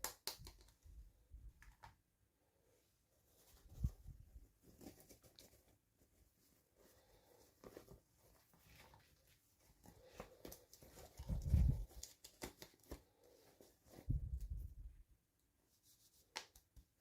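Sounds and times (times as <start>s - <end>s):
plastic and paper rustling: 3.4s - 14.6s.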